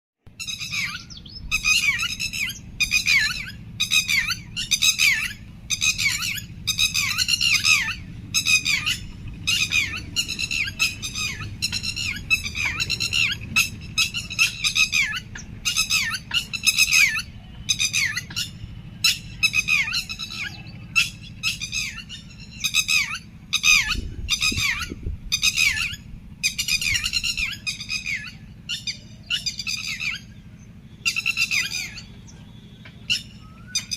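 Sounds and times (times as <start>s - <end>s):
birds calling: 0.3s - 33.9s
low steady hum: 0.3s - 33.9s.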